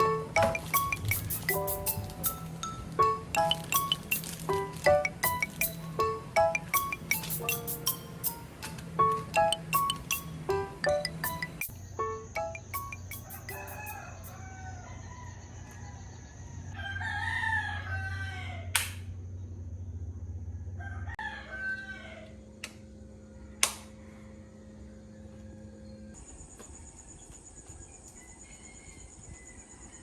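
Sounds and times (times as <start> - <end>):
rooster crowing: 13.0 - 18.8, 20.6 - 22.6, 23.3 - 26.1, 28.2 - 30.0.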